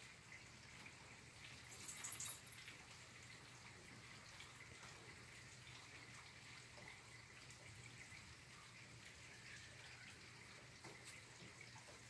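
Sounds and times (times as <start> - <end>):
light rain hiss: 0.0 - 12.0
small drip ticks: 0.0 - 12.0.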